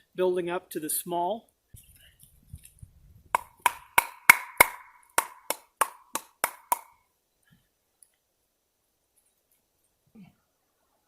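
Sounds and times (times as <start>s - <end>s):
wood being struck: 3.3s - 6.9s.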